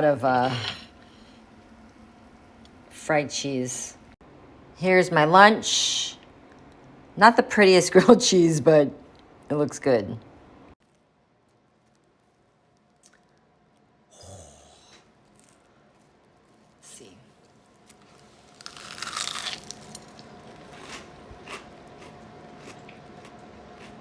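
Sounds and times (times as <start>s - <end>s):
person biting crispy sandwich: 17.8s - 22.9s
chewing: 17.8s - 24.0s.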